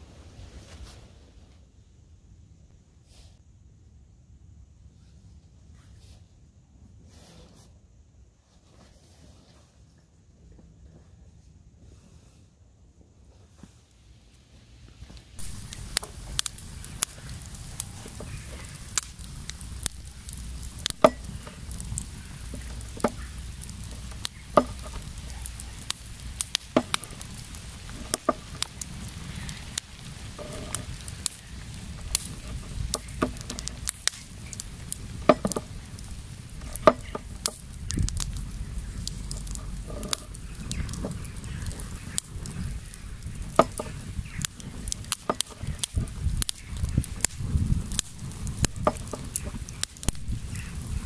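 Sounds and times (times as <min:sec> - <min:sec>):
campfire crackling and popping: 0:14.9 - 0:51.0
low steady rumble: 0:15.3 - 0:51.0.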